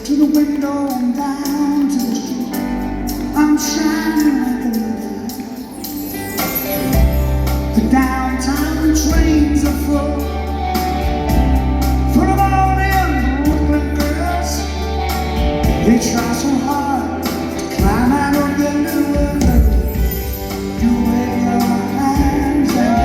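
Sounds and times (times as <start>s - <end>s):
live rock band playing: 0.0s - 23.0s
lead voice singing: 7.6s - 23.0s.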